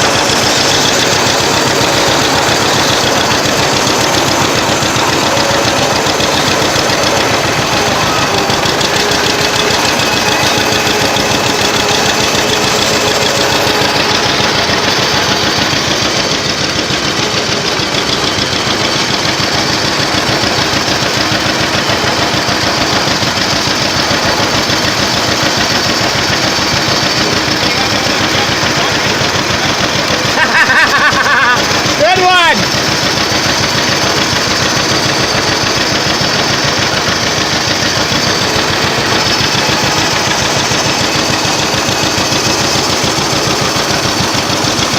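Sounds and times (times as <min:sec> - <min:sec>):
old tractor engine running: 0:00.0 - 0:44.9.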